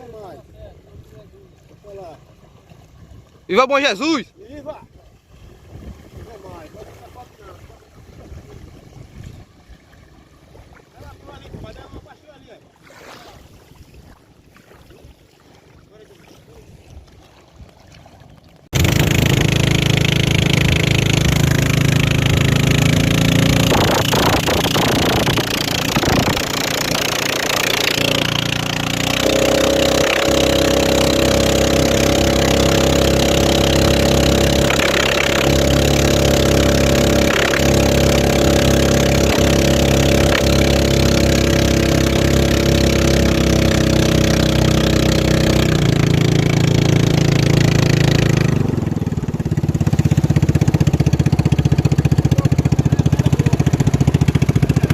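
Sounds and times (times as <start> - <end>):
racing boat engine running: 18.3 - 54.9.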